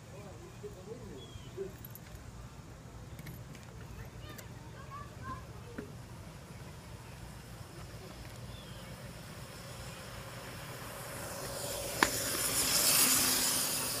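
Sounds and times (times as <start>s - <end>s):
electric dirt bike motor whine: 7.4s - 14.0s.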